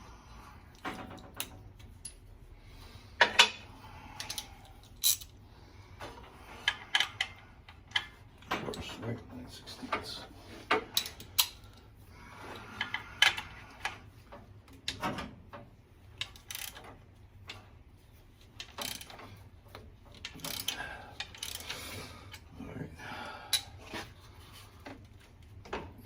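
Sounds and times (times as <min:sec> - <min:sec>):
socket ratchet clicking: 0:20.3 - 0:21.8.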